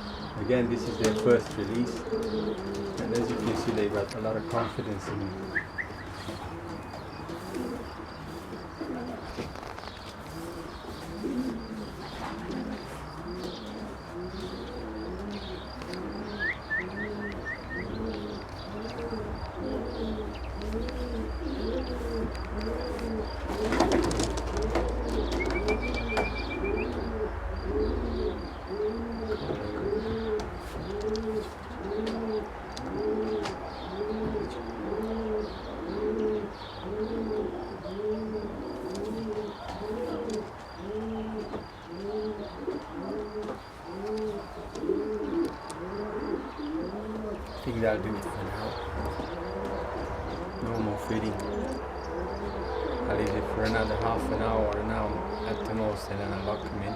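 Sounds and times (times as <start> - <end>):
pigeons cooing: 0.0 - 56.9
high bird chirps: 5.5 - 7.4, 15.4 - 20.6, 25.2 - 27.1.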